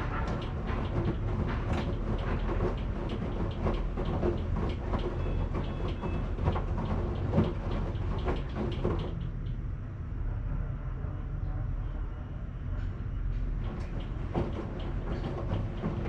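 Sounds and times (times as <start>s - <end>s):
laundry tumbling and clattering: 0.0s - 9.2s, 13.6s - 16.0s
washing machine humming: 0.0s - 9.5s, 13.5s - 16.0s.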